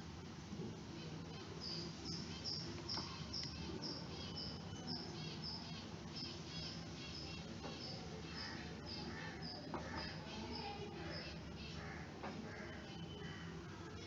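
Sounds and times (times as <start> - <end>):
small bird chirping: 1.3 - 11.8.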